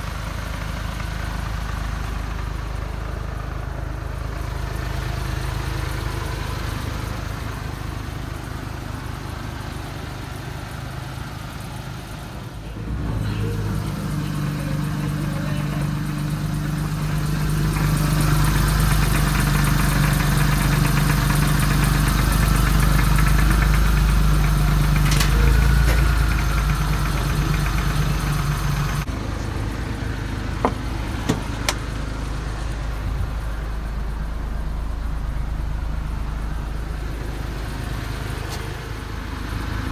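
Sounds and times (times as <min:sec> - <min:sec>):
van engine idling: 0:00.0 - 0:39.9
clicks: 0:30.6 - 0:31.9.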